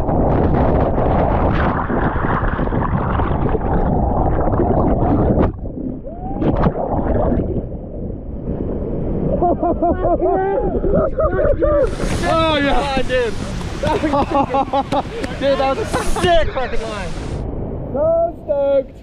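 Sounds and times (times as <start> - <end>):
rushing whitewater: 11.8 - 17.4.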